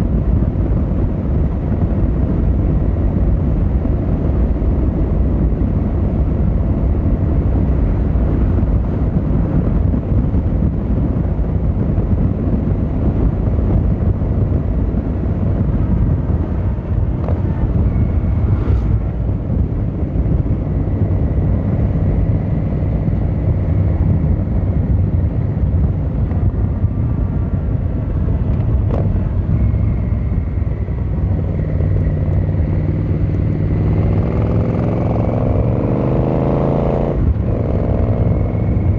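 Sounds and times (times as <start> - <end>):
road noise: 0.0 - 38.9
wind: 0.0 - 38.9.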